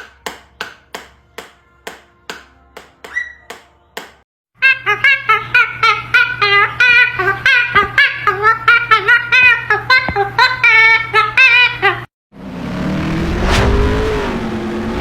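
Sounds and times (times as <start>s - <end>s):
high voice singing rapid notes: 4.6s - 12.1s.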